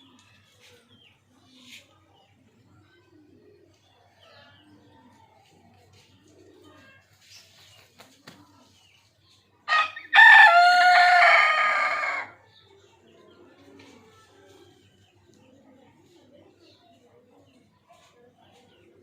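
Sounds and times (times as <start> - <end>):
rooster crowing: 9.7 - 12.3.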